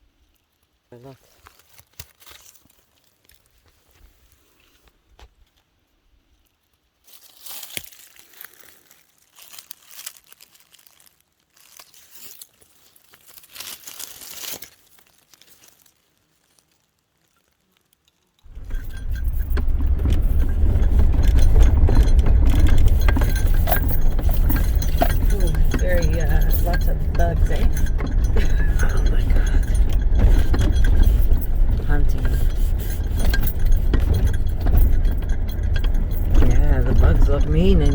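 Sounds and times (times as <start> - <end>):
rustling and crinkling: 0.1 - 37.9
car in motion rumbling: 18.5 - 37.9.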